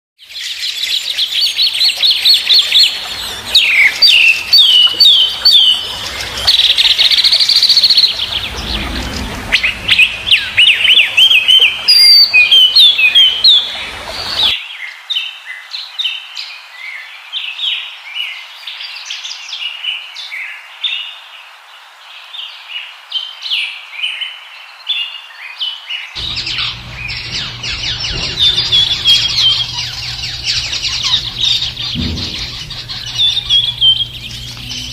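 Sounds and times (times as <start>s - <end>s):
birds chirping and singing: 0.3s - 14.6s, 26.2s - 34.9s.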